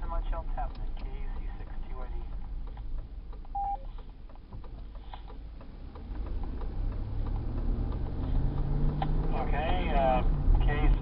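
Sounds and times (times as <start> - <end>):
car engine accelerating: 0.0 - 11.0
car road rumble: 0.0 - 11.0
light clicks: 0.6 - 9.3
short beep: 3.6 - 3.9.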